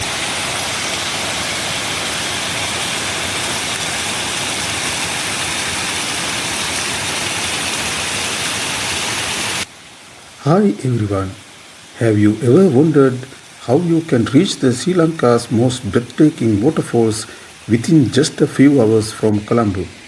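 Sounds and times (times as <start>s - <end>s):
waterfall roaring: 0.0s - 20.0s.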